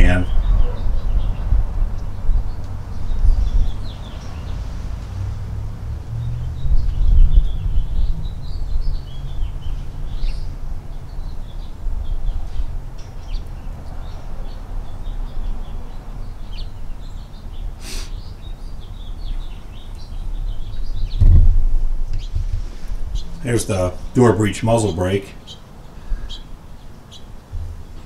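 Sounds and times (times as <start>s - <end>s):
small birds chirping: 0.0s - 28.0s
low rumble: 20.5s - 24.2s.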